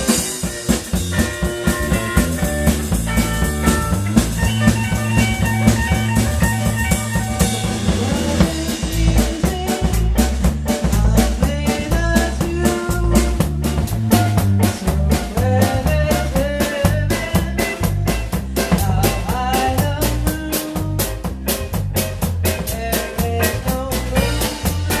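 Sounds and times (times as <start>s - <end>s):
lead melody bending notes: 0.0s - 8.5s
bass line: 0.0s - 25.0s
blues band playing: 0.0s - 25.0s
drum kit beat: 0.0s - 25.0s.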